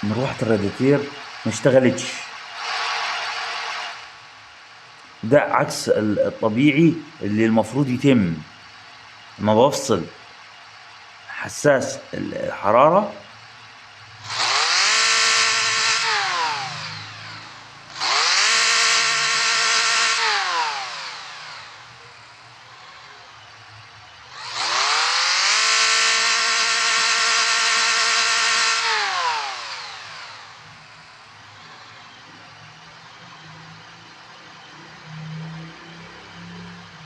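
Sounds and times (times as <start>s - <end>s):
car engine revving: 14.2s - 22.1s.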